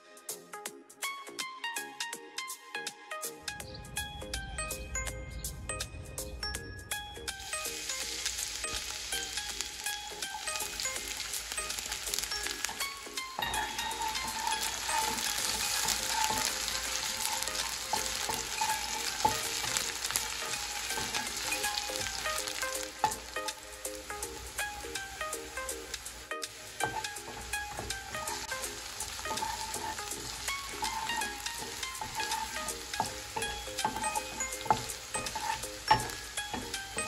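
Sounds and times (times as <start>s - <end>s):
spring onion sizzling in oil: 6.2s - 37.0s
wooden spatula scraping pan: 7.4s - 37.0s.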